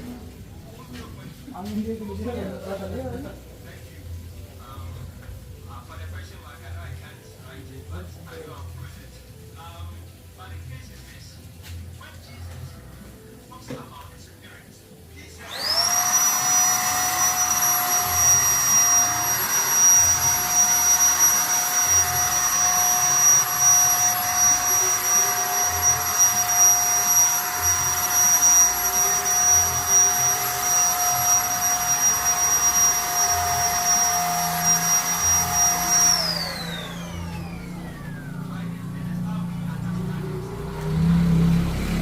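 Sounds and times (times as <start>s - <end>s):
spray gun motor whining: 15.4s - 42.0s.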